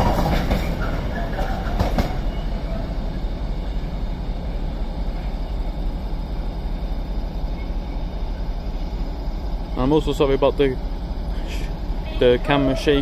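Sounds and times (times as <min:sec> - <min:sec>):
train wheels clacking: 0:00.0 - 0:02.5
diesel train engine rumbling: 0:00.0 - 0:13.0.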